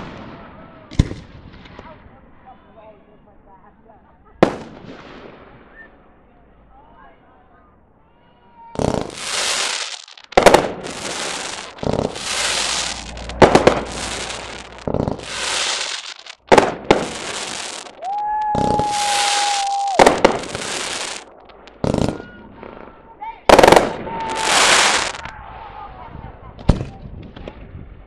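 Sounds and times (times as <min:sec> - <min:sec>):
firework bangs: 0:04.4 - 0:05.8, 0:08.8 - 0:25.4, 0:26.6 - 0:27.7
crackling of bursting shells: 0:08.8 - 0:18.1, 0:19.0 - 0:22.2, 0:23.5 - 0:25.3
firework whistle: 0:08.8 - 0:21.3, 0:23.5 - 0:25.4.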